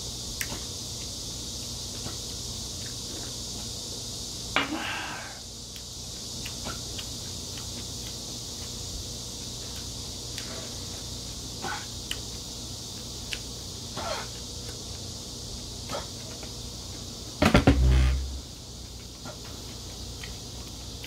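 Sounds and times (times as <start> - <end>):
high-pitched hiss: 0.0 - 19.4
man chewing food: 0.3 - 4.3, 5.6 - 17.3, 18.6 - 21.0.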